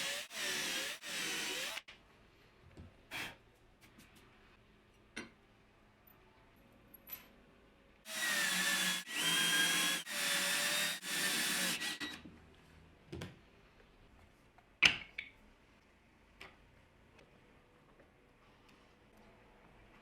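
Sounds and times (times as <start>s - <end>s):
power drill bursts: 0.0s - 1.8s, 8.1s - 12.2s.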